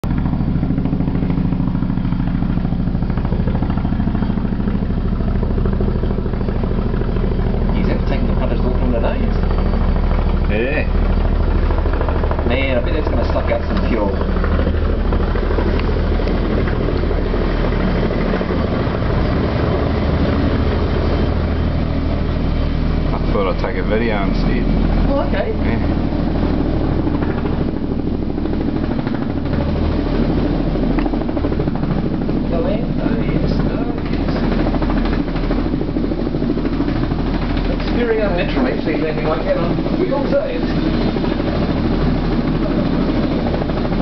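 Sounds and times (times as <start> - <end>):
helicopter rotors beating: 0.0 - 44.0
low drone: 0.0 - 44.0
turboshaft engines: 0.0 - 44.0.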